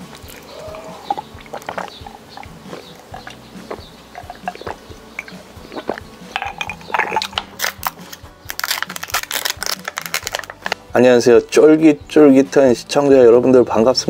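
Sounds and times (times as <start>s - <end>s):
chewing with crisp crunches: 0.0s - 10.8s
quiet background music: 0.0s - 14.0s.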